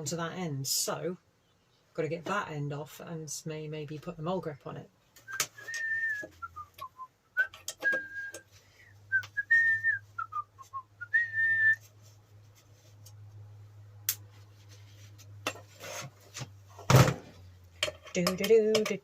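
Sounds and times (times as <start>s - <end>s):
person whistling a tune: 5.3s - 8.5s, 9.1s - 11.8s.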